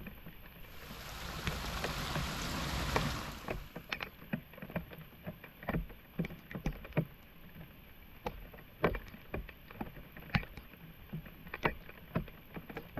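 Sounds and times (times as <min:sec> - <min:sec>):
floodwater splashing and sloshing: 0:00.7 - 0:03.9.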